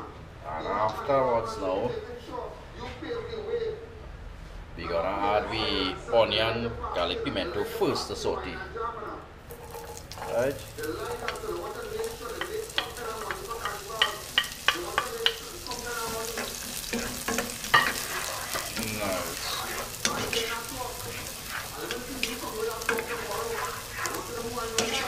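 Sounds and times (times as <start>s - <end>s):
food sizzling in hot oil: 9.5s - 25.0s
wooden spoon knocking on pan: 11.0s - 19.0s.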